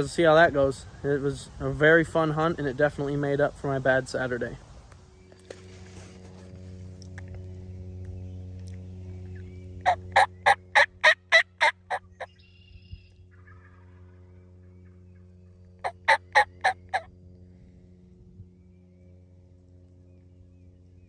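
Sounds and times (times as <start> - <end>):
steady low hum: 0.0 - 21.0
turkey gobbling: 9.9 - 12.3, 15.8 - 17.1.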